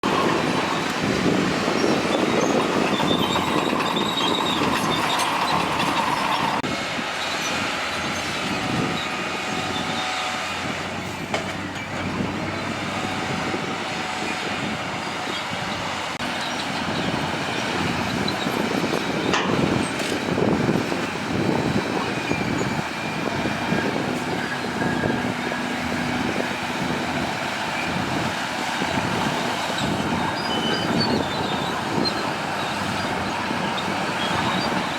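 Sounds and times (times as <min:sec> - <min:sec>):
steady mechanical clatter: 0:00.0 - 0:06.7
diesel engines running: 0:00.0 - 0:34.9
high metallic squeal: 0:00.1 - 0:06.6, 0:29.5 - 0:34.9.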